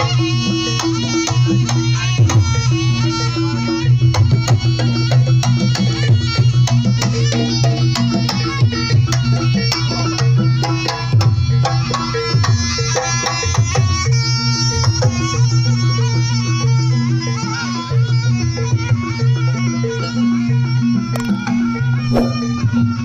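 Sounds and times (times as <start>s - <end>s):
hand drum strokes: 21.2s - 23.0s.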